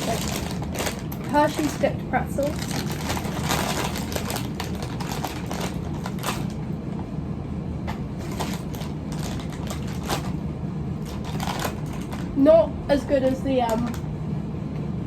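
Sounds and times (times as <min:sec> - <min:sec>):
snack packet crackling: 0:00.0 - 0:01.8, 0:02.4 - 0:06.6, 0:08.2 - 0:10.4, 0:11.0 - 0:12.4
steady low hum: 0:00.0 - 0:15.0.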